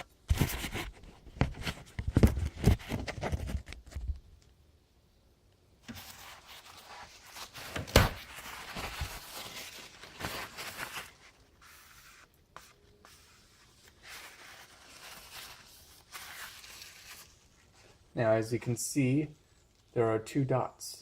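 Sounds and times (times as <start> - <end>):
handling rustling: 5.8 - 18.0.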